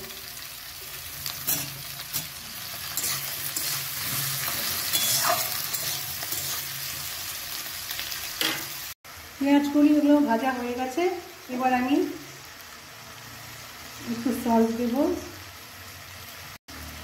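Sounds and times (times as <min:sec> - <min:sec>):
vegetables sizzling in oil: 0:00.0 - 0:17.0
metal spatula scraping a pan: 0:01.2 - 0:07.1, 0:08.4 - 0:08.8.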